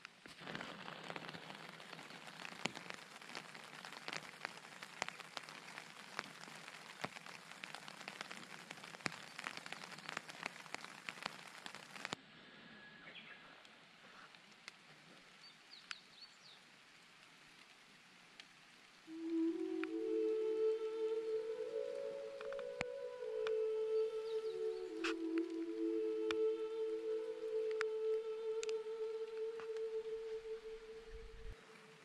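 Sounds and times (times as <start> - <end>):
water drops pattering on tarp: 0.0 - 12.2, 13.6 - 30.0
bird chirps: 12.8 - 13.5.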